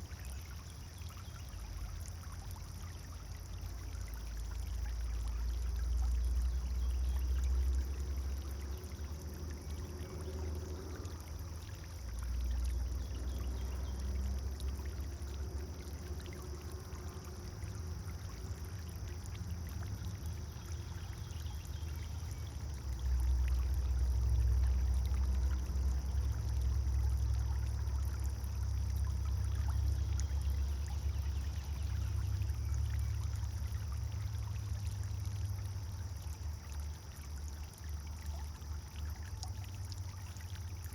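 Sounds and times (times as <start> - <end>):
fountain trickling water: 0.0 - 40.9.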